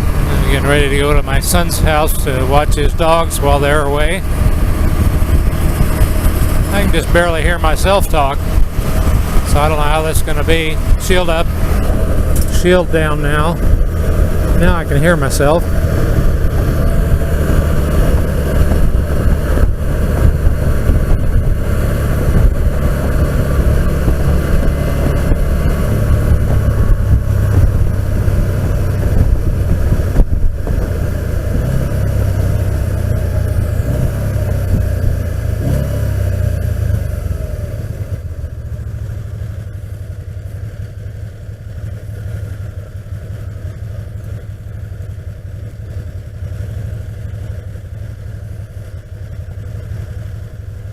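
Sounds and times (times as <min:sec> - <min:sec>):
wind buffeting helmet microphone: 0:00.0 - 0:38.4
engine rumble: 0:00.0 - 0:50.9.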